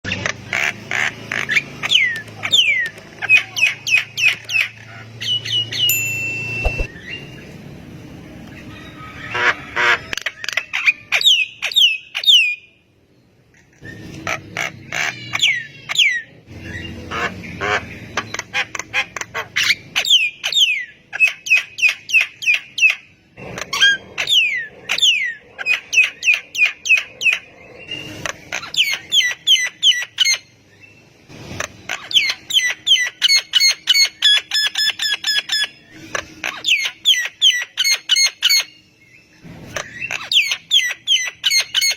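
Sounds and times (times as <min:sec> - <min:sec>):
bird chattering: 0:39.7 - 0:41.9.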